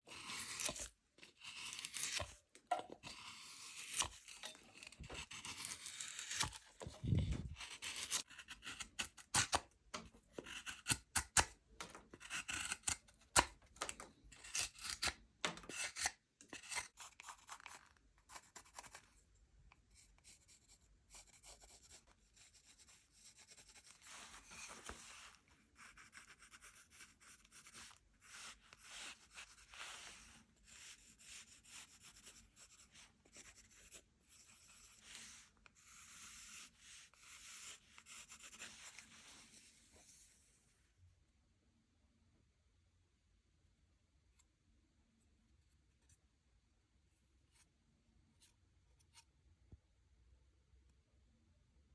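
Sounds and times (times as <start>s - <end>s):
carving tool shaving wood: 0.0s - 9.6s, 10.3s - 11.5s, 12.1s - 19.0s, 25.7s - 35.2s, 35.8s - 39.0s.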